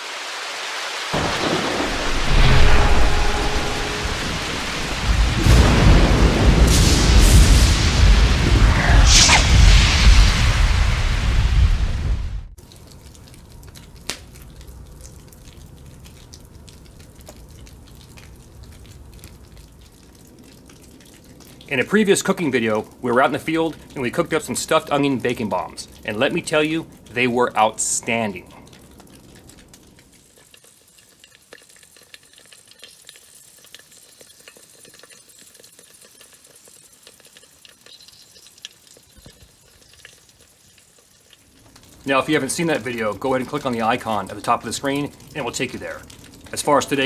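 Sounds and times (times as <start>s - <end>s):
fire crackling and popping: 0.0s - 47.0s
food sizzling over campfire: 0.0s - 47.0s
low rumble: 1.2s - 12.6s
sharp pops: 8.8s - 10.4s, 13.8s - 14.6s
small clicks and ticks: 12.6s - 21.7s, 28.5s - 47.0s.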